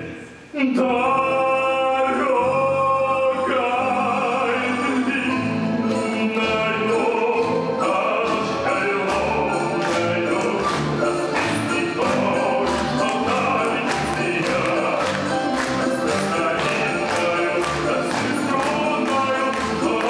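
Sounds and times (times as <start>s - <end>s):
voices singing: 0.6s - 20.0s
orchestra playing: 1.0s - 20.0s
percussion strikes: 5.7s - 20.0s.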